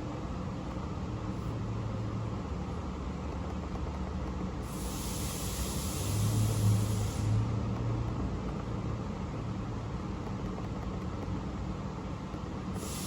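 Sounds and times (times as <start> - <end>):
hiss: 4.6 - 7.5, 12.8 - 13.0.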